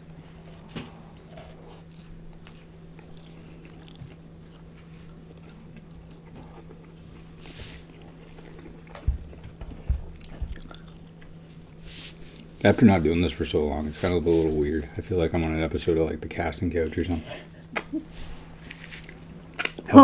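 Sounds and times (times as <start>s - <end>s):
steady low hum: 0.0s - 20.0s
chewing and biting food: 0.2s - 12.6s.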